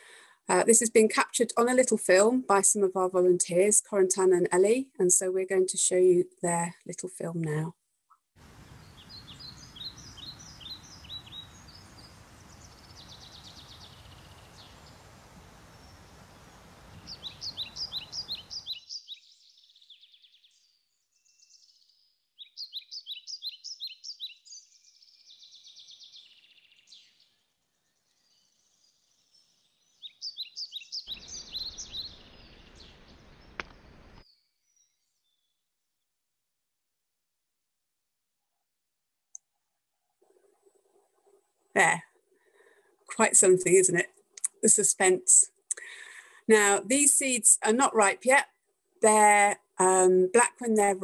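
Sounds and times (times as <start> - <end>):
steady outdoor hiss: 8.4 - 18.8, 29.3 - 34.2
songbird trilling chirps: 8.7 - 27.3, 28.2 - 35.5.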